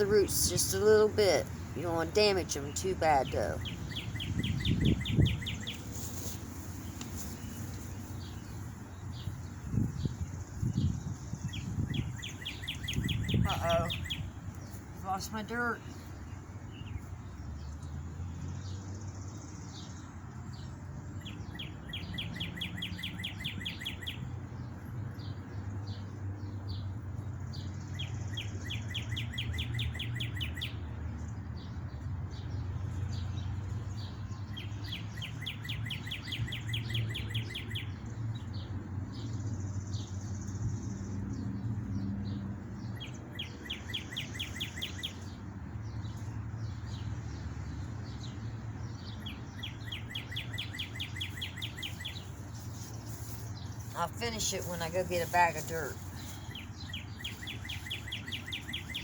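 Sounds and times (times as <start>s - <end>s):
songbird trilling: 0.0s - 17.1s, 49.0s - 59.0s
wind rumble on microphone: 0.0s - 18.0s.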